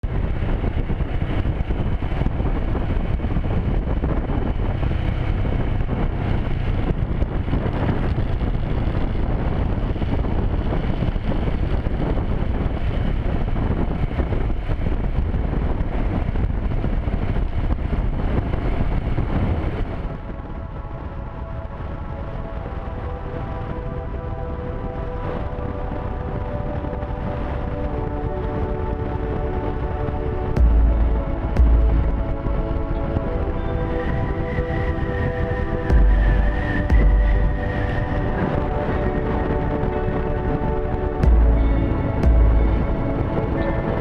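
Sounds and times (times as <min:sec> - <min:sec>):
wind noise on microphone: 0:00.0 - 0:44.0.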